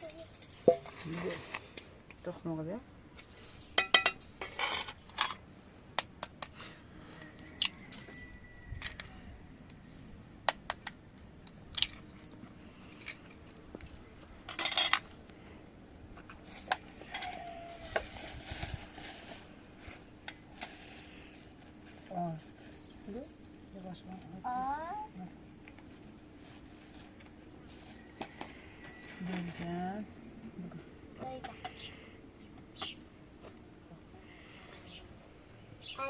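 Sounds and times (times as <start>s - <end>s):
dishes clattering: 3.8s - 4.8s
dishes and utensils clinking: 3.8s - 4.9s.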